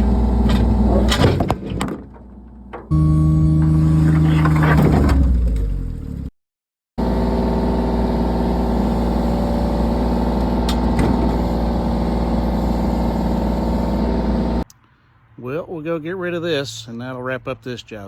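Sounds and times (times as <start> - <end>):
engine running steadily: 0.0 - 4.8, 7.0 - 14.7.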